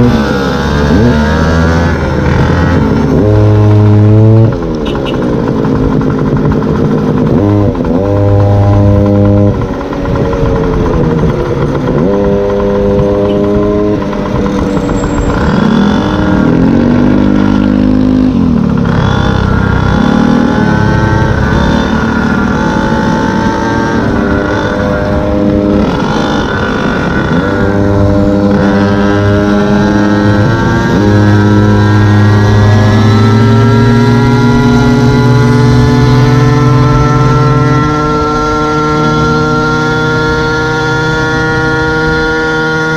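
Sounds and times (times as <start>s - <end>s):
scooter engine running: 0.0s - 42.9s.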